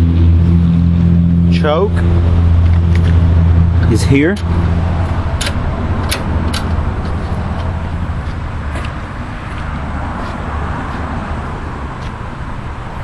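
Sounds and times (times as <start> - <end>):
low motor hum: 0.0 - 13.0
sharp clicks: 5.4 - 7.2.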